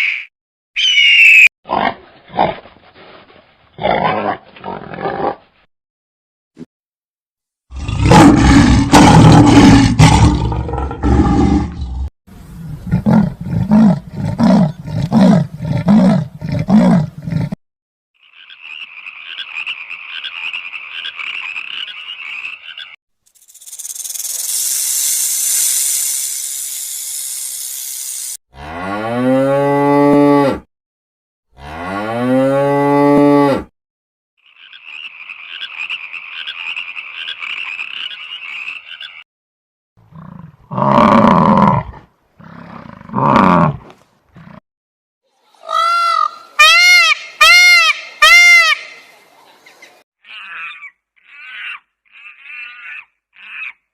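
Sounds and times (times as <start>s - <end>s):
animal roar: 7.7s - 12.1s, 40.1s - 44.6s
frog croaking chorus: 18.2s - 23.0s, 34.4s - 39.2s
long hiss: 23.4s - 28.4s.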